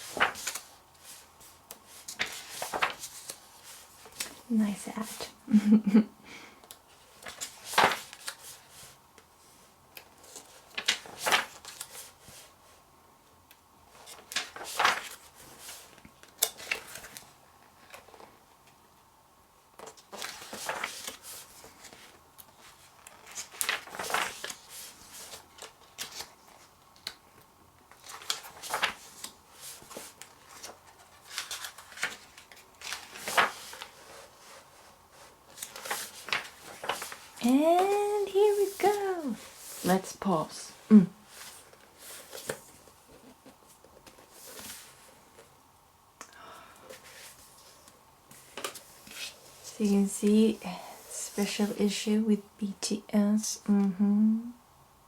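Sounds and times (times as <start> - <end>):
magazine pages turning: 0.0 - 4.4, 7.1 - 9.0, 10.0 - 12.4, 13.9 - 18.3, 19.8 - 40.2, 41.2 - 45.5.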